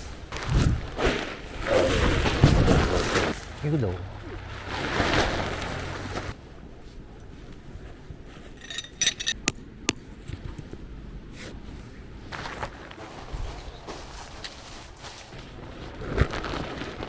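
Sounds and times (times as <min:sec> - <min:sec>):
light metallic clinks: 0:08.5 - 0:09.6.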